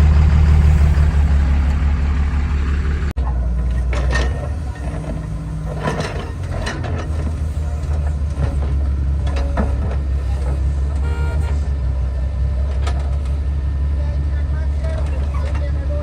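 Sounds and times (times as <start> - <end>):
heavy diesel engine running: 0.0 - 16.0
metal clanks and knocks: 3.6 - 10.7.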